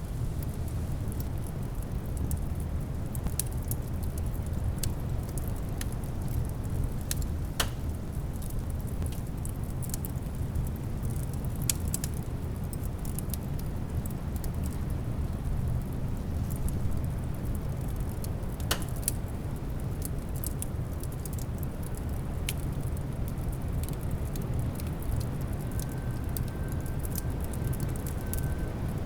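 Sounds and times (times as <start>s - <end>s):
wood fire crackling: 0.0s - 29.0s
faint thin whistle: 25.7s - 29.0s.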